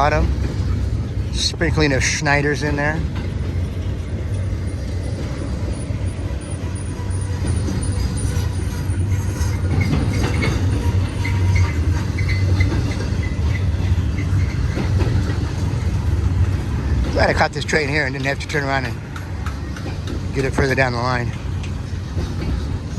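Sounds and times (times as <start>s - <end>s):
train wheels rumbling on rails: 0.0s - 22.9s
high-pitched wheel squeaks: 5.7s - 14.9s.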